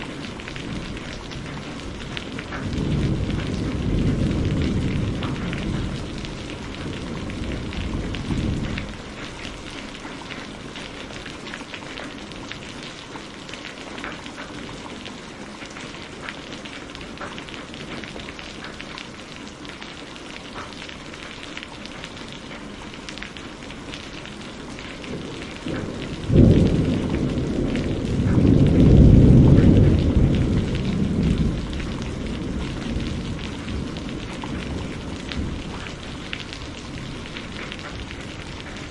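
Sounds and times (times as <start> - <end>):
thunder rumbling: 0.0 - 13.0, 23.3 - 38.9
steady rainfall: 0.0 - 38.9
sharp thunderclap: 0.6 - 9.1, 25.1 - 38.9.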